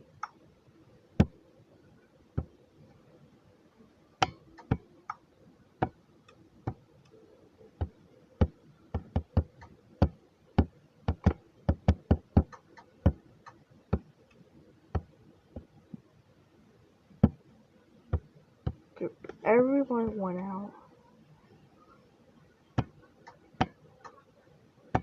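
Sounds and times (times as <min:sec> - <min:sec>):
sharp clicks and light knocks: 0:07.8 - 0:16.0.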